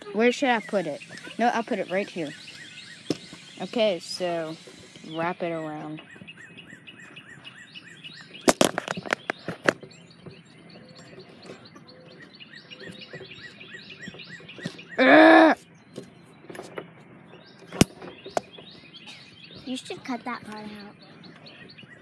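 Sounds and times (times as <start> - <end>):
bird chirping: 0.0 - 22.0
camera handling clicks and knocks: 8.5 - 9.8.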